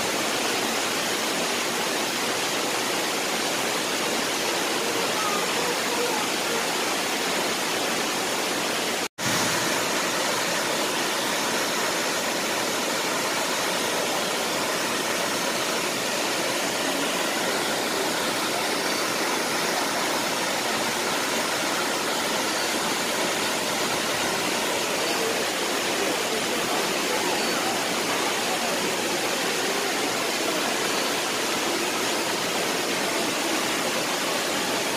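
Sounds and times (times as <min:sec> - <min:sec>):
waterfall roaring: 0:00.0 - 0:34.9.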